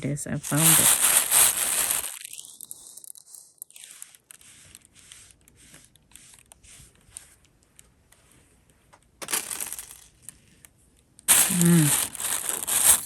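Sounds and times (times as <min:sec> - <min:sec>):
jewelry pieces clicking and rustling: 0:00.4 - 0:04.4, 0:09.2 - 0:10.3, 0:11.3 - 0:13.0.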